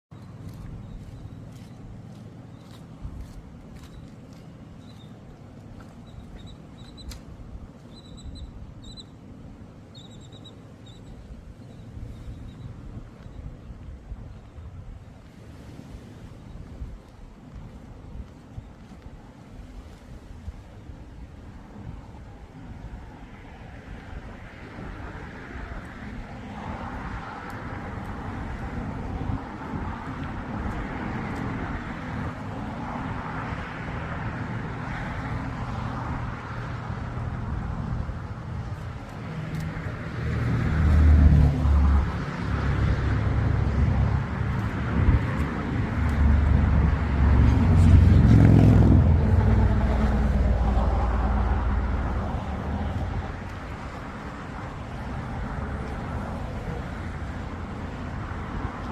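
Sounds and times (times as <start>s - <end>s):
road traffic: 0.0s - 58.9s
heavy vehicle passing: 30.3s - 58.8s.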